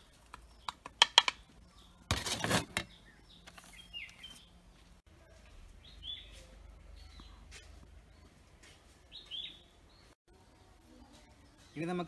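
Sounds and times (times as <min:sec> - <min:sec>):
faint outdoor background noise: 0:00.0 - 0:12.0
bird chirps: 0:02.8 - 0:04.6, 0:05.2 - 0:08.4, 0:09.1 - 0:10.2.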